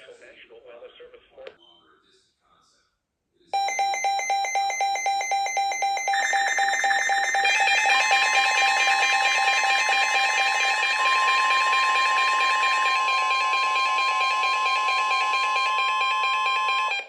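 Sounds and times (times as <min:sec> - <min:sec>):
steady warning alarm tone: 0:03.6 - 0:17.0.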